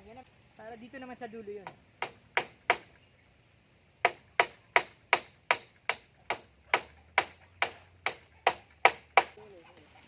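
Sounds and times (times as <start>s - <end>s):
hammer striking wood: 1.6s - 2.9s, 4.0s - 9.4s.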